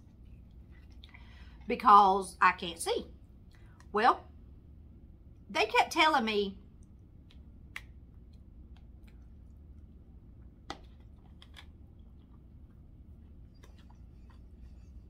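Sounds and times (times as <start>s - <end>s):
low steady hum: 0.0s - 15.0s
person chewing food: 6.8s - 15.0s.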